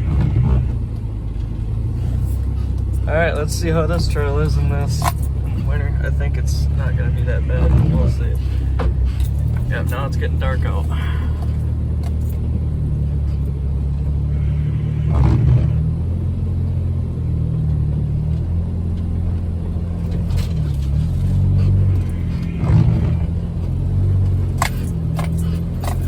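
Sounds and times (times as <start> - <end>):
car engine at low revs: 0.0 - 26.0
body thumps and rattles: 19.9 - 26.0.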